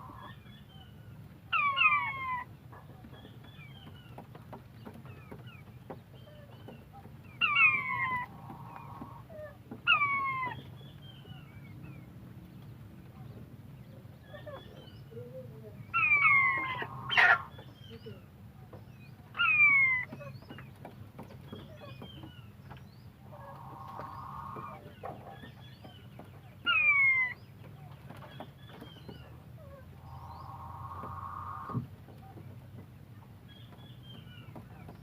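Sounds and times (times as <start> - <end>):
buzzy bird calls: 0.0 - 12.2, 13.2 - 32.6
faint bird chirps: 21.5 - 32.4
falling whistled bird calls: 30.0 - 31.8.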